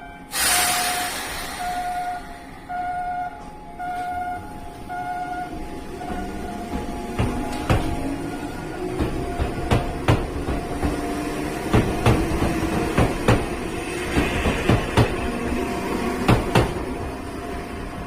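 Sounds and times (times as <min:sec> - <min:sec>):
train wheels knocking over rail joints: 0:06.0 - 0:08.1, 0:08.8 - 0:15.4, 0:16.2 - 0:16.8.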